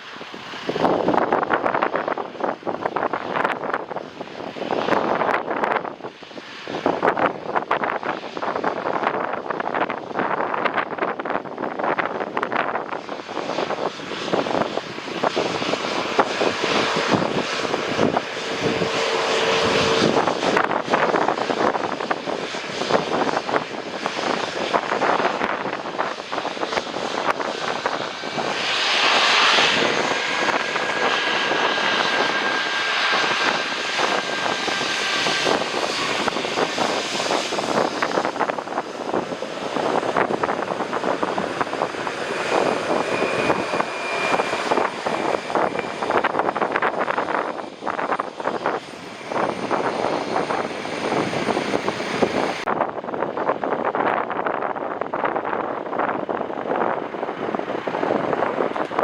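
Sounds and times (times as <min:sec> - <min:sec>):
jet engines whining: 0:00.0 - 0:59.0
wind buffeting microphone: 0:00.0 - 0:59.0.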